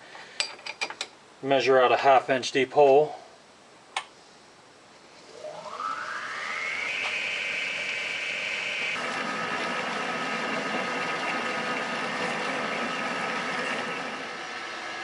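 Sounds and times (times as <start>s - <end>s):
lathe motor whining: 5.2s - 15.0s.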